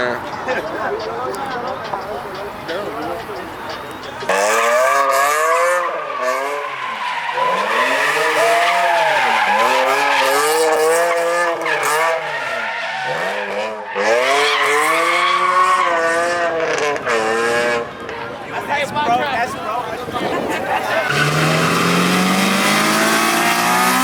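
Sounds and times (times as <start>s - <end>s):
tyres squealing and skidding: 0.0s - 24.0s
car engine revving hard: 4.3s - 17.9s, 20.8s - 24.0s.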